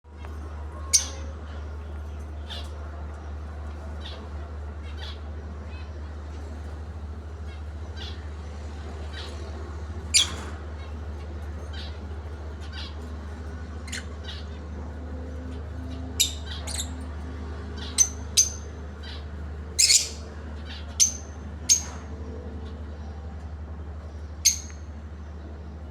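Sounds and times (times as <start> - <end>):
steady low hum: 0.1 - 25.9
lovebirds chirping: 15.7 - 17.1, 17.7 - 22.1.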